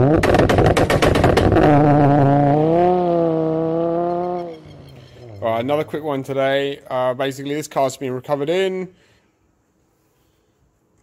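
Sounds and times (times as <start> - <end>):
sharp exhaust pops: 0.0 - 5.7
car engine revving: 0.0 - 6.0.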